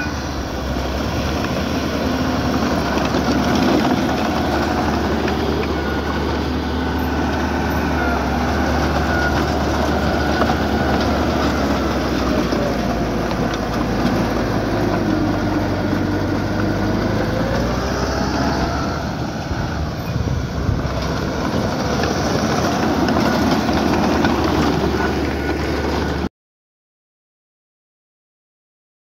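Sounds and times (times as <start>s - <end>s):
diesel engine running: 0.0s - 26.3s.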